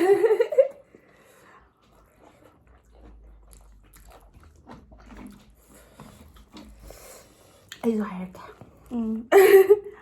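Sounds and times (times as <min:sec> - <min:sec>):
person chewing food: 0:00.6 - 0:07.8.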